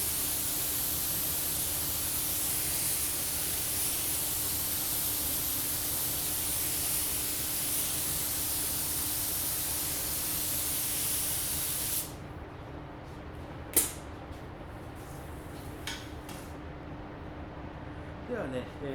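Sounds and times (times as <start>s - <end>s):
paint spray gun hissing: 0.0s - 12.1s
sharp click: 13.8s - 14.0s.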